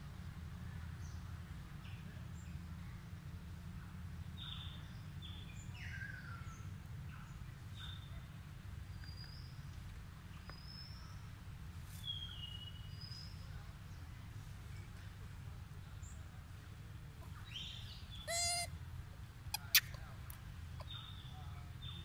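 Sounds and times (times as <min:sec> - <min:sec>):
low background rumble: 0:00.0 - 0:22.0
bird chirps and whistles: 0:18.3 - 0:18.7.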